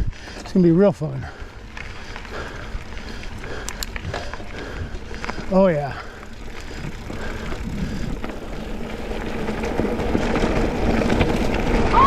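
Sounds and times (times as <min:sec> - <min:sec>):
bike tyre rumble: 0:00.0 - 0:12.0
wind on microphone: 0:06.8 - 0:08.3.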